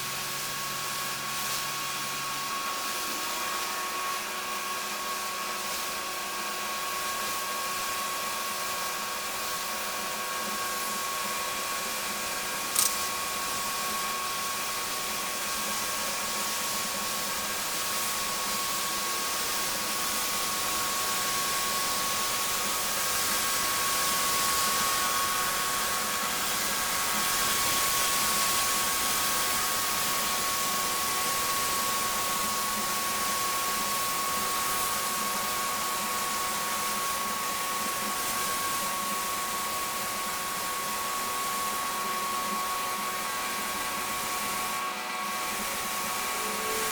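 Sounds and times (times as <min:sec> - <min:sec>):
pressure washer motor whine: 0:00.0 - 0:46.9
pressure washer spraying: 0:12.6 - 0:13.8.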